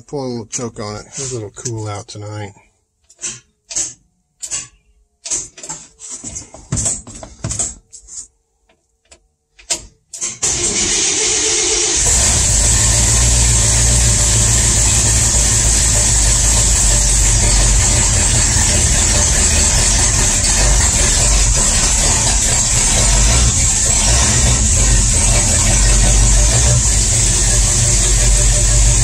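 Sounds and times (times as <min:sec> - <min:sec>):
engine cranking and running: 0:10.2 - 0:29.0.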